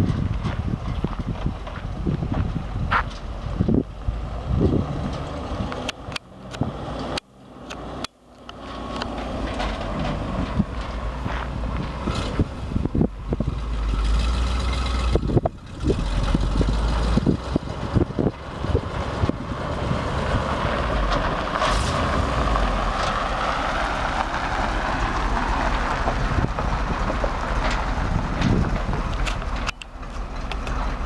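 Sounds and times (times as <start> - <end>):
truck engine rumble: 0.0 - 31.0
knocks and clunks: 8.5 - 31.0
rushing noise: 8.7 - 31.0.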